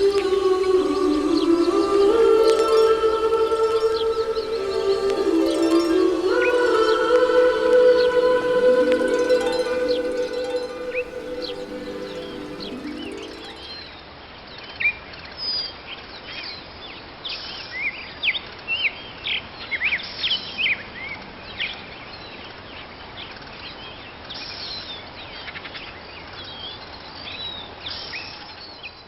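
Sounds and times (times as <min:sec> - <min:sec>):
birds chirping: 0:00.0 - 0:13.9
steady background hiss: 0:00.0 - 0:14.0.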